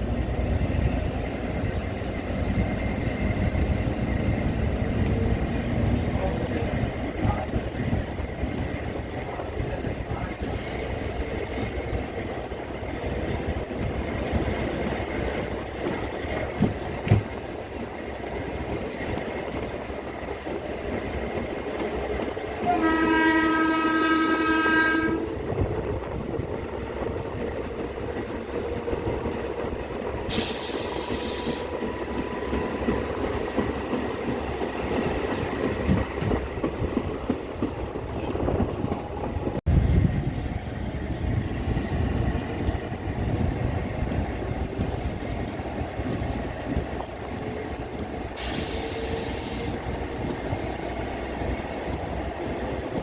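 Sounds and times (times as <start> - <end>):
train rumbling along track: 0.0 - 53.0
train horn: 22.6 - 25.4
short hiss: 48.4 - 49.8.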